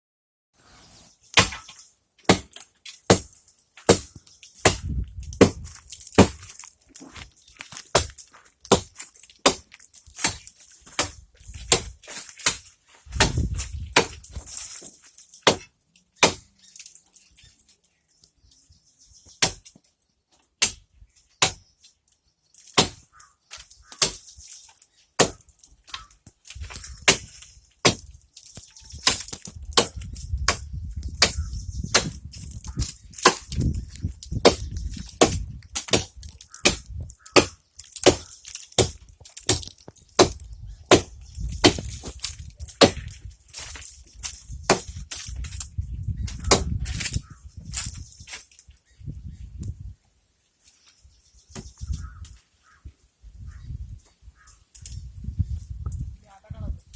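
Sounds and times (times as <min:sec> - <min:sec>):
axe chopping into tree: 0:01.3 - 0:06.6, 0:07.8 - 0:16.5, 0:19.4 - 0:19.8, 0:20.6 - 0:20.8, 0:21.4 - 0:21.6, 0:22.7 - 0:23.1, 0:23.9 - 0:24.3, 0:25.2 - 0:45.7, 0:46.3 - 0:47.2.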